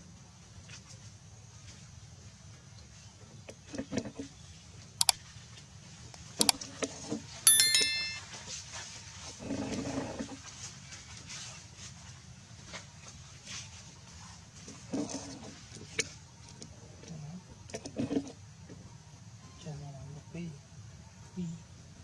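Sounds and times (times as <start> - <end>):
ringing metallic clink: 7.5 - 8.2.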